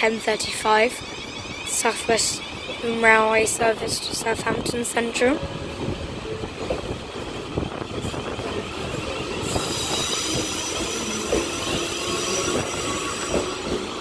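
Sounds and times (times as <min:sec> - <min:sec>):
high-pitched squealing: 0:00.0 - 0:04.2, 0:09.2 - 0:13.8
train wheels rumbling on rails: 0:00.0 - 0:14.0.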